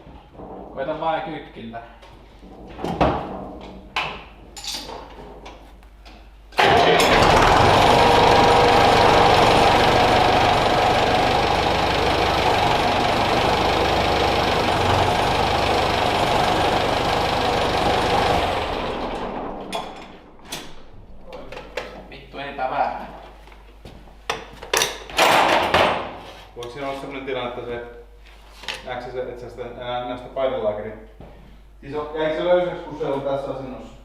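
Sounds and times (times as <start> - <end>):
tractor diesel engine running: 6.6 - 20.2.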